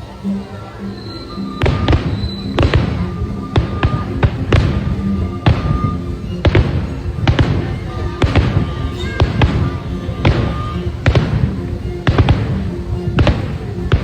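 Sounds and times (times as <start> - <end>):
music soundtrack: 0.0 - 14.0
fireworks bursting: 1.1 - 14.0.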